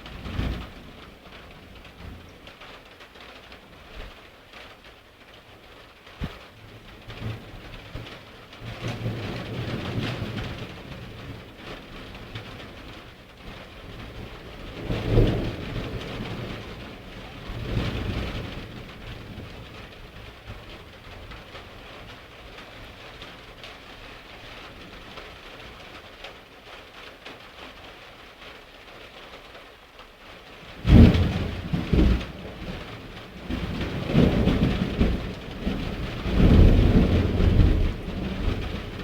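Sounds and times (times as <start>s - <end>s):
rain falling: 0.0s - 39.0s
thunder rumbling: 7.2s - 21.1s, 30.8s - 39.0s.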